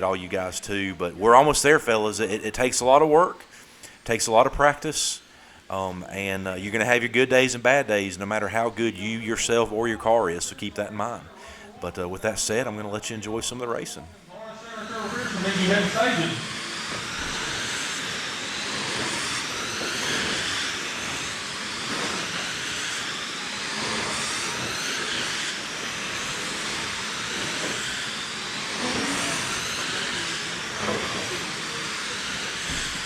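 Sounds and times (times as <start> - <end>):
tyres hissing on dirt: 0.2 - 33.0
electric motor whines: 8.5 - 33.0.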